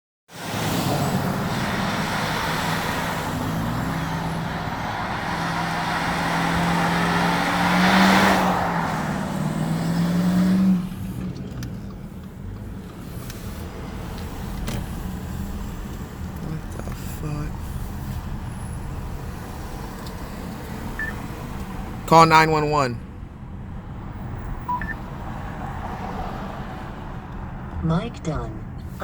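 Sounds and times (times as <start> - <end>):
street traffic: 0.3 - 29.0
truck engine revving hard: 0.5 - 11.3.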